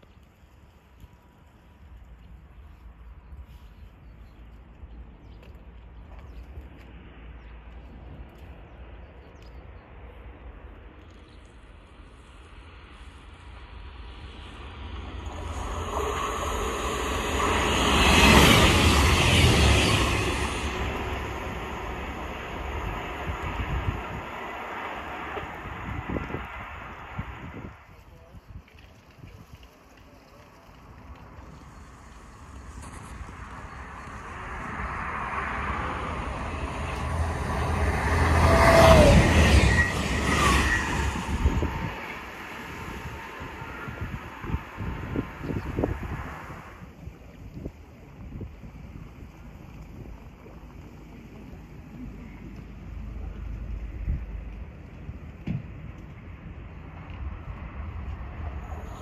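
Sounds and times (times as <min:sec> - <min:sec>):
passenger train passing: 0:11.6 - 0:28.4, 0:31.2 - 0:47.4, 0:48.0 - 0:59.0.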